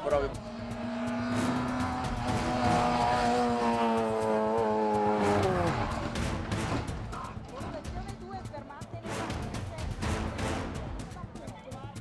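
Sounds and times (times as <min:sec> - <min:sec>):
car engine at high revs: 0:00.0 - 0:07.6.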